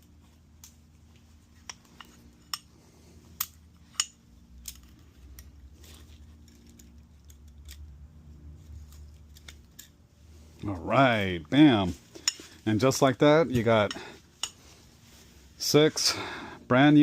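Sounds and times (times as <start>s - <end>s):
handling rustle: 0.0s - 7.9s
metal parts clicking: 3.3s - 8.0s, 8.6s - 10.0s.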